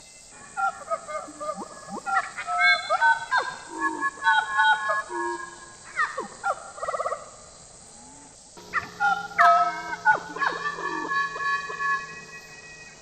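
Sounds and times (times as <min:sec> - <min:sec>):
bird rattling trill: 0:08.6 - 0:13.0
bird whistling and calling: 0:08.6 - 0:13.0.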